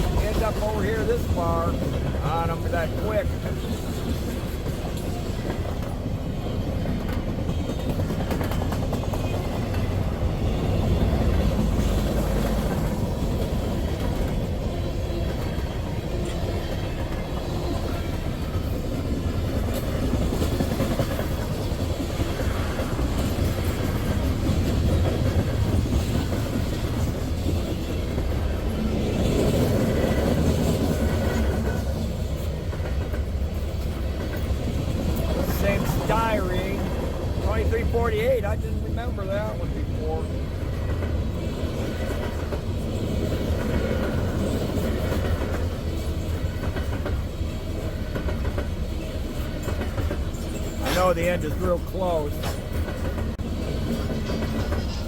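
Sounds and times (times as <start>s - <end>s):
freight train rumbling past: 0.0s - 55.0s
train wheel clatter: 0.0s - 55.0s.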